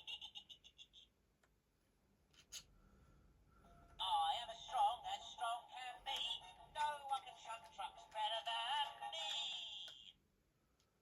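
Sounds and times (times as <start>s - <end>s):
toy train voice and music: 4.0s - 10.2s.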